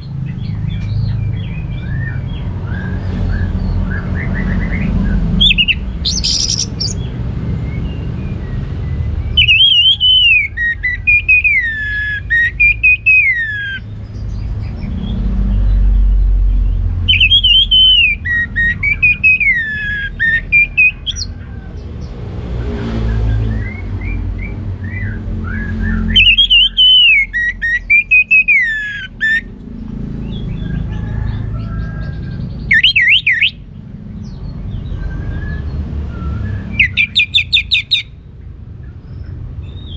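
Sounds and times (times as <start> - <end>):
thrush singing whistles: 1.8 - 13.9, 17.0 - 21.4, 23.0 - 29.5, 32.6 - 33.7, 34.9 - 38.2.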